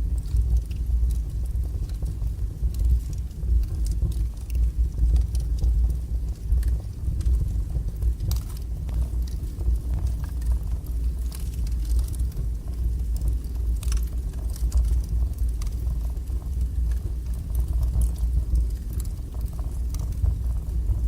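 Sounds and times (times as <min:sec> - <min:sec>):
wood fire burning and crackling: 0:00.0 - 0:21.0.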